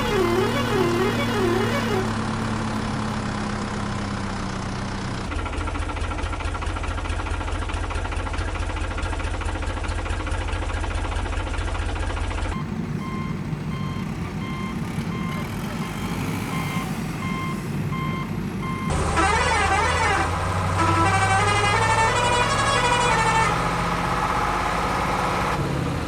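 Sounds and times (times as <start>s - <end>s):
diesel engine running: 0.0s - 26.0s
reversing alarm beeping: 12.5s - 23.7s.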